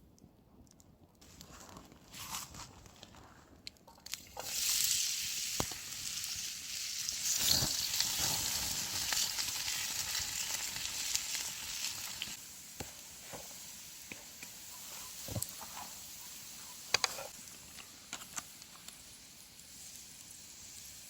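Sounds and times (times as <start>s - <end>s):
oil popping and crackling: 3.7s - 16.0s, 16.6s - 21.0s
food sizzling in hot oil: 4.1s - 21.0s.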